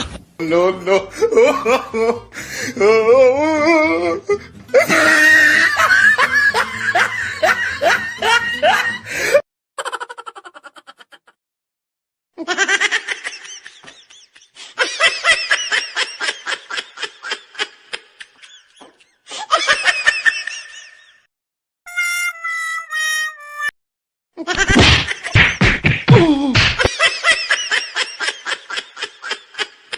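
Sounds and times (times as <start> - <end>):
high-pitched laughter: 4.7 - 9.1, 9.8 - 11.4.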